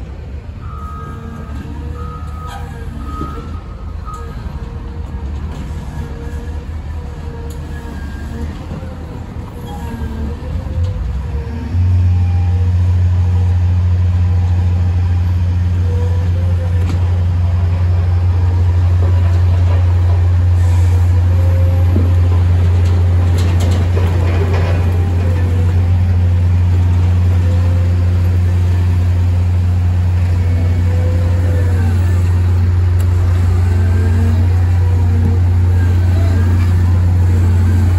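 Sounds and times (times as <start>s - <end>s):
diesel engine droning: 0.0s - 37.9s.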